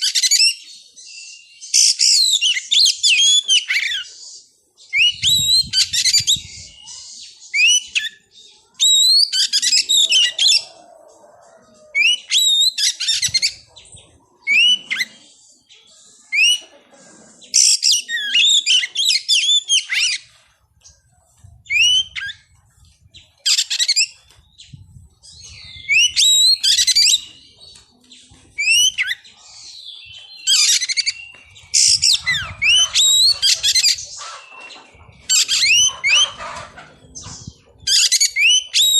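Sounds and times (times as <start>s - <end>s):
magpie-robin singing: 0.0s - 10.7s, 12.0s - 16.6s, 17.6s - 20.3s, 21.4s - 38.9s.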